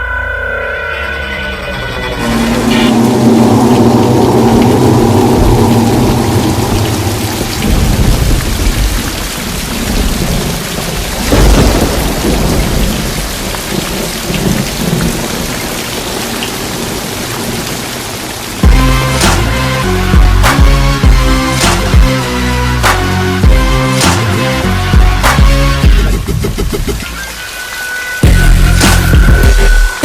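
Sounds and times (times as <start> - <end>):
music: 0.0 - 4.3, 18.6 - 30.0
deep rumbles: 1.3 - 15.1, 18.6 - 27.0
rushing water: 1.8 - 30.0.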